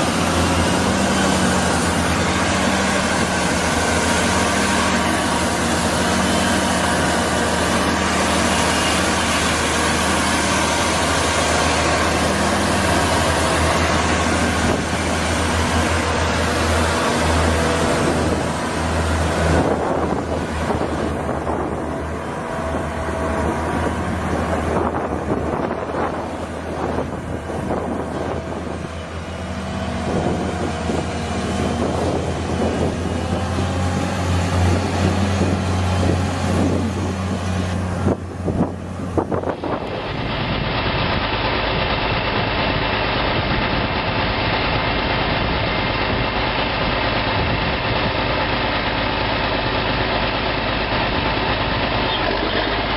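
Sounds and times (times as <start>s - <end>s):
engine idling: 0.0s - 52.9s
tractor engines running: 0.0s - 52.9s
wind on microphone: 12.4s - 44.1s.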